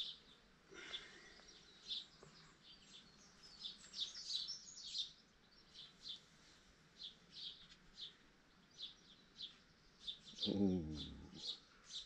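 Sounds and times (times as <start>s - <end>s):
small bird high chirps: 0.0s - 6.3s.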